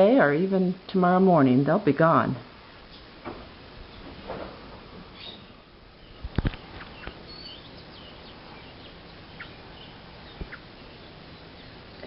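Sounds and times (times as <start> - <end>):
small birds chirping: 5.1 - 12.0.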